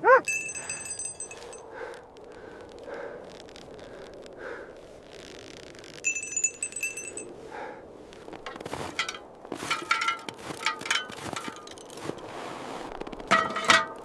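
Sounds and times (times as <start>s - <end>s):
glassy ringing clinks: 0.2s - 1.7s, 6.0s - 7.4s, 8.4s - 12.3s.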